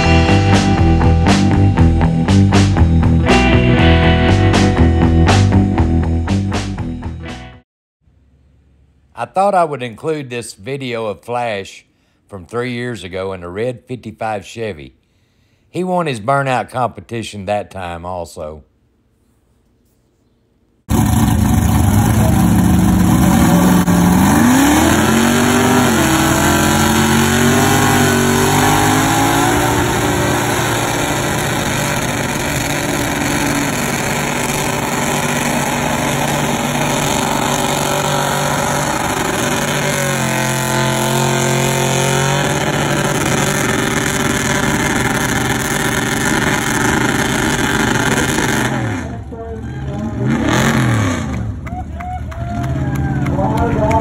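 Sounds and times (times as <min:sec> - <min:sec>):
drag car engines revving: 0:20.9 - 0:54.0.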